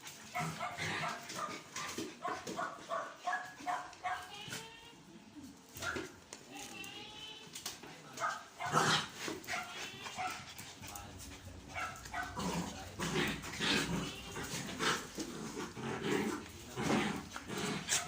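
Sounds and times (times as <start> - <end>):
puppies growling: 8.6 - 18.0.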